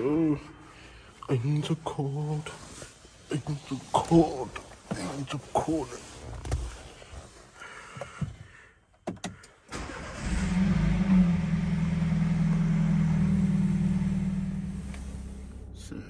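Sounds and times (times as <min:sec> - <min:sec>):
car engine starting and idling: 0:09.0 - 0:16.0.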